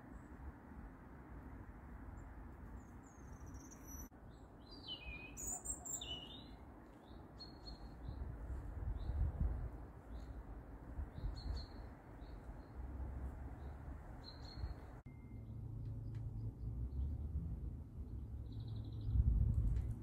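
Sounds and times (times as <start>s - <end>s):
songbird warbling: 2.8s - 7.9s.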